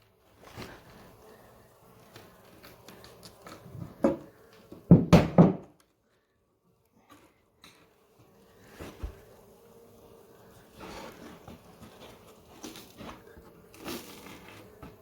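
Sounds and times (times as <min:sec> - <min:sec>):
wooden floorboards knocking: 0:04.8 - 0:05.7.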